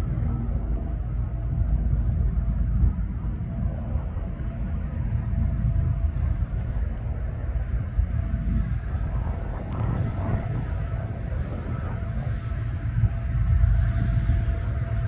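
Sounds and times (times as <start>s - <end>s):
diesel freight train rumble: 0.0s - 15.0s
faint engine hum: 0.0s - 15.0s.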